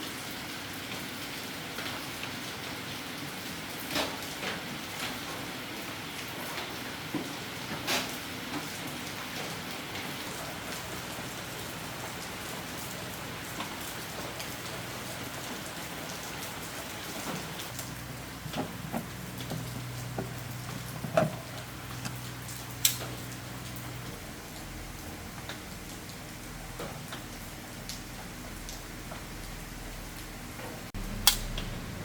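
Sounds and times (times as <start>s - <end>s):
rain pattering: 0.0s - 32.0s
low steady hum: 31.0s - 32.0s.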